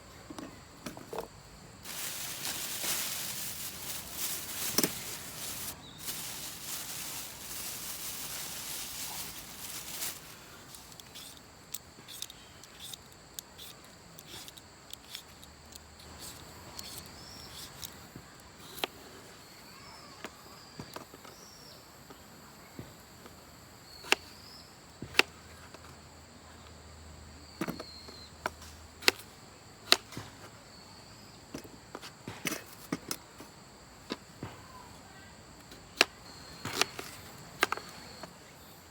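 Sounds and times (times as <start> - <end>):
rushing rustling noise: 1.8 - 11.0.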